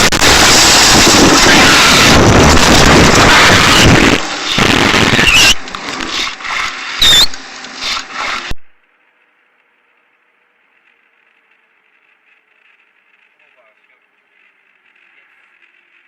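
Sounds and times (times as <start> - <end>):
brief high squeals: 5.2 - 5.6, 7.0 - 8.0.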